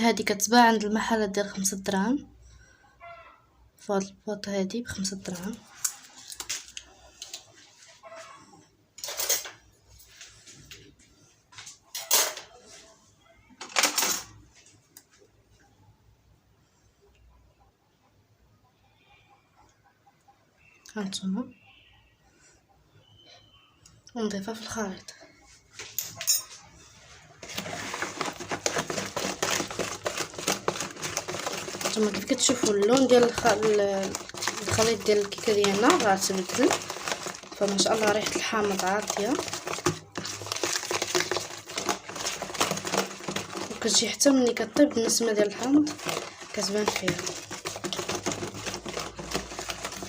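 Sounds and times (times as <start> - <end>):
batter mixed in bowl: 4.4 - 7.7, 27.4 - 50.0
kitchen items clattering: 9.0 - 10.9, 11.7 - 12.9, 13.6 - 14.6, 25.8 - 50.0.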